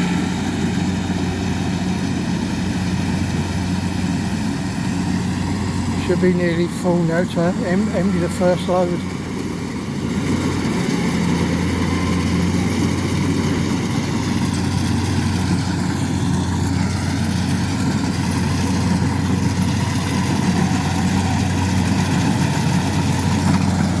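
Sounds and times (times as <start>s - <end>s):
farm machinery engine droning: 0.0s - 24.0s.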